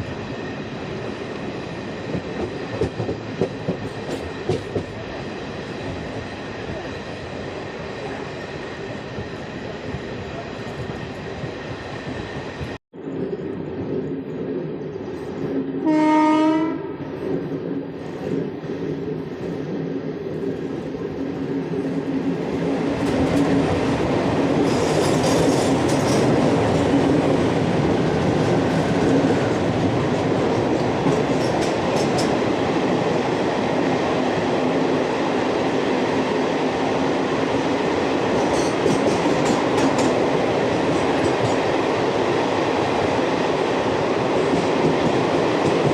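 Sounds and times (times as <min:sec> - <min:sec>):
train running noise: 0:00.0 - 0:45.9
train horn blast: 0:15.8 - 0:17.0.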